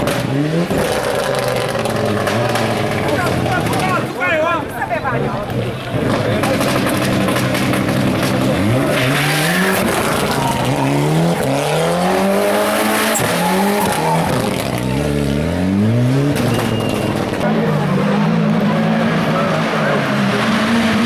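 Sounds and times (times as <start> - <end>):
race car accelerating through gears: 6.0 - 21.0.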